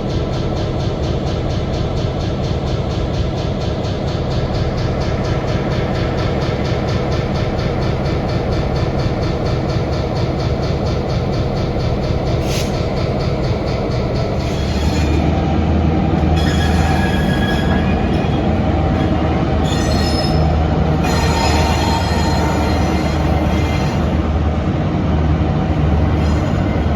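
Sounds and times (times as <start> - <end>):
train wheels rumbling on rail: 0.0 - 26.9
high ringing wheel squeal: 14.2 - 15.3, 16.4 - 24.1, 26.2 - 26.9.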